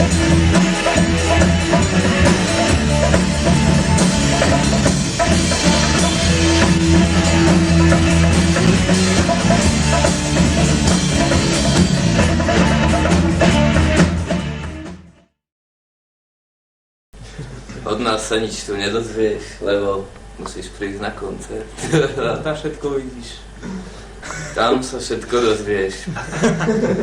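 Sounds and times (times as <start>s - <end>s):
electric guitar: 0.0s - 14.9s
drum kit: 0.0s - 15.1s
bass guitar: 0.0s - 15.2s.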